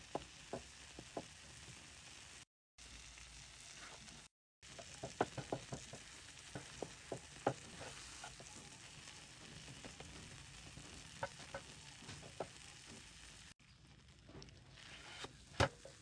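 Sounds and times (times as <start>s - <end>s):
butter and sugar sizzling in pan: 0.0s - 16.0s
crackles and pops: 2.8s - 16.0s
spatula working bread: 4.7s - 13.4s, 14.3s - 16.0s.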